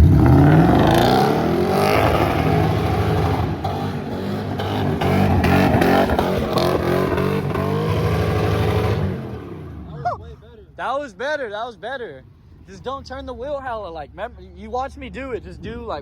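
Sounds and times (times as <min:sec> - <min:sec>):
car engine revving hard: 0:00.0 - 0:09.9.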